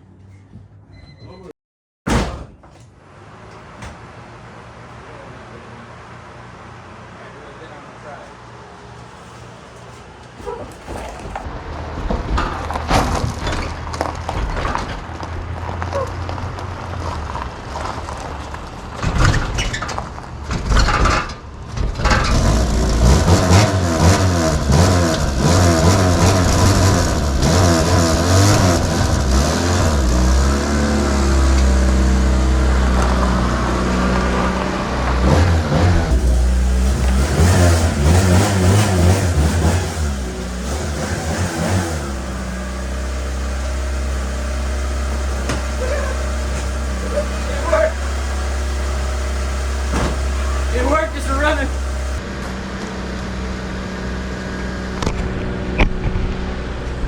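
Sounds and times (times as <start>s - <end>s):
car being pushed clunking and rolling: 9.0s - 30.3s, 34.1s - 52.5s
car engine running and revving: 11.4s - 19.2s, 21.8s - 57.0s.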